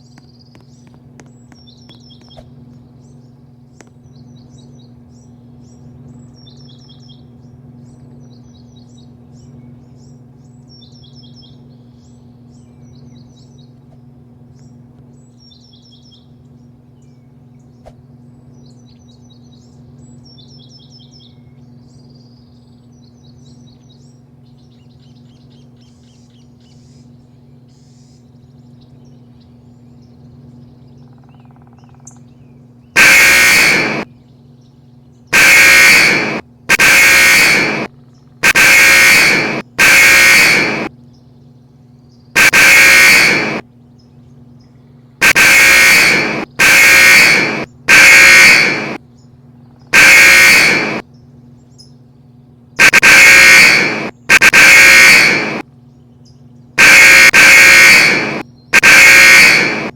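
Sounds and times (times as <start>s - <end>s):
small birds chirping: 0.0s - 53.1s, 55.2s - 56.8s
low machine hum: 0.0s - 59.9s
loud blaring blast: 33.0s - 34.1s, 35.3s - 40.9s, 42.4s - 43.6s, 45.2s - 49.0s, 49.9s - 51.0s, 52.8s - 55.6s, 56.8s - 59.9s.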